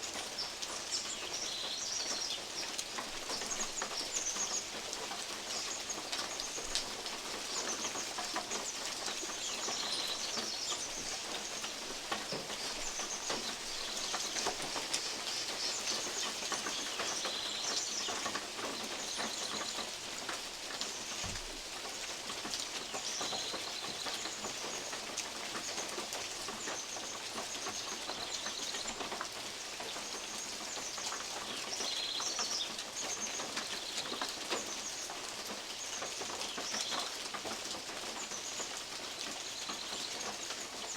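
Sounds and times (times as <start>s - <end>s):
steady rain in woodland: 0.0s - 40.9s.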